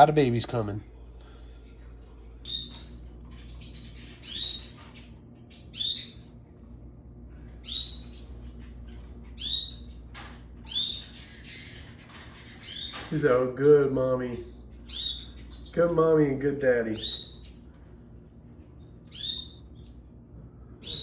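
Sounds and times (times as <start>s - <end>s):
canaries chirping: 2.5s - 6.4s, 7.4s - 17.8s, 18.7s - 20.2s, 20.8s - 21.0s.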